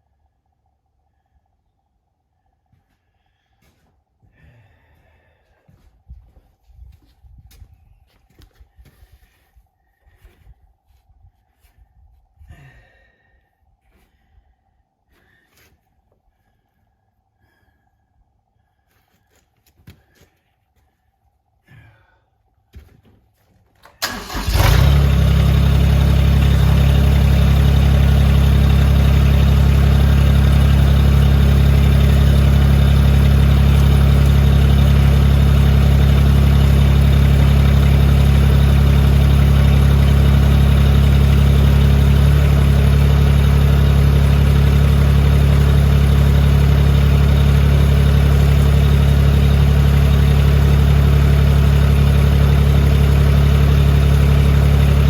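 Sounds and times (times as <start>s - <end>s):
tractor diesel engine running: 23.8s - 55.0s.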